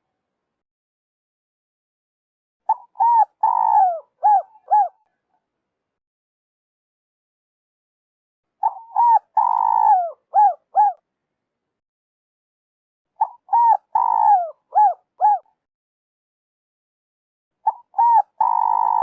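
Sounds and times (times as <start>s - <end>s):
dove cooing: 2.7s - 5.0s, 8.6s - 11.0s, 13.2s - 15.5s, 17.6s - 19.0s.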